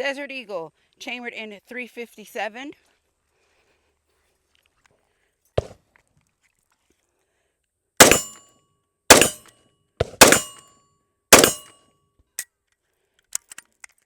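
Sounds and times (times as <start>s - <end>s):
gunshots: 8.0s - 8.4s, 9.1s - 9.4s, 10.1s - 10.6s, 11.4s - 11.7s
steel target ringing: 8.0s - 8.4s, 9.1s - 9.5s, 10.2s - 10.7s, 11.4s - 11.7s
small metallic clicks: 13.2s - 14.0s.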